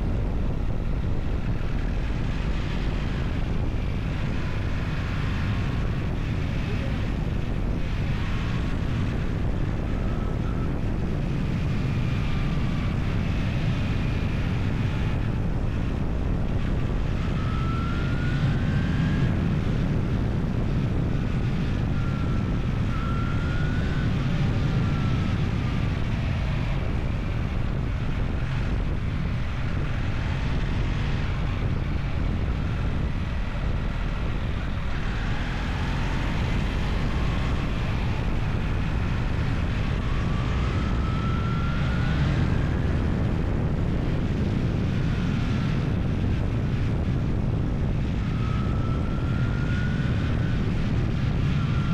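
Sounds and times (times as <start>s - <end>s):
vehicle engine running: 0.0s - 51.8s
faint whines: 0.1s - 46.8s.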